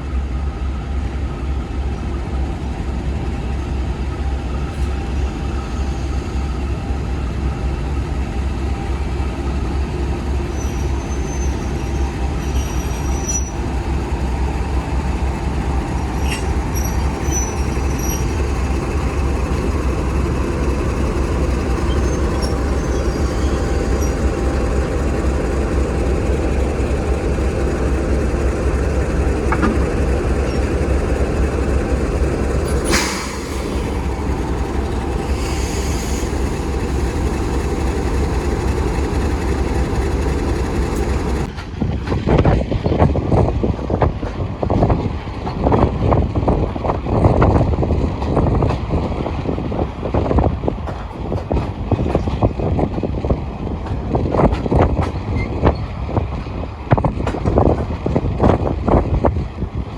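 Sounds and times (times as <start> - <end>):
train rumble on rails: 0.0 - 59.9
high wheel squeals: 4.9 - 41.5.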